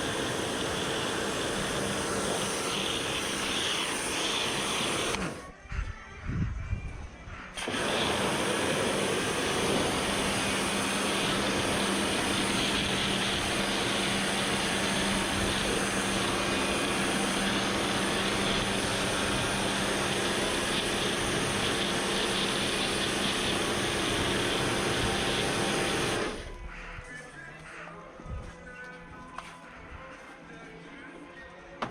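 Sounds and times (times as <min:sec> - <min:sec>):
high-pressure water spray hissing: 0:00.0 - 0:05.4, 0:07.6 - 0:26.5
pump motor humming: 0:00.0 - 0:05.4, 0:07.6 - 0:26.7.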